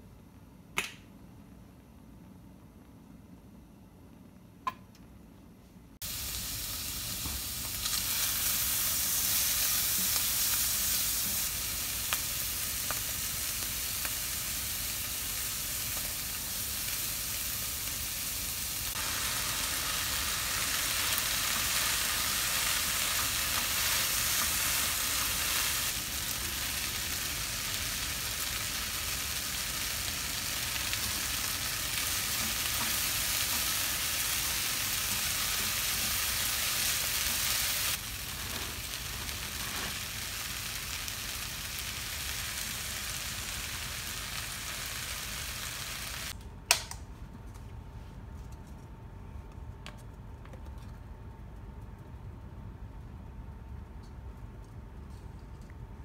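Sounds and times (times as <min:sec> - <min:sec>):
food sizzling in hot oil: 0:06.0 - 0:46.4.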